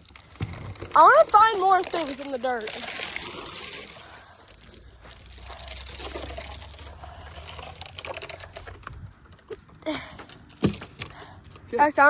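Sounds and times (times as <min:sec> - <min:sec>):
soil sliding off shovel: 0:00.0 - 0:08.7
grit scraping and crunching: 0:00.0 - 0:12.0
shovel digging into loose dirt: 0:00.2 - 0:09.0.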